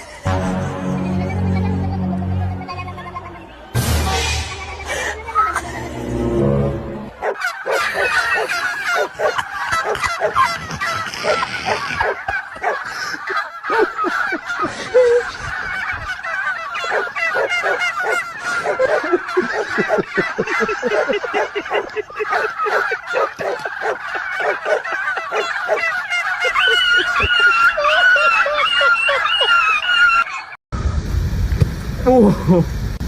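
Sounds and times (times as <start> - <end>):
flock of birds calling: 7.1 - 30.6.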